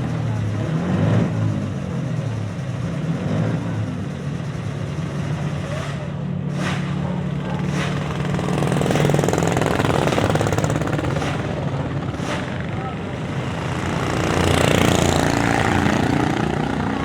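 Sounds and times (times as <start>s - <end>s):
motorcycle engines droning at low revs: 0.0s - 17.0s.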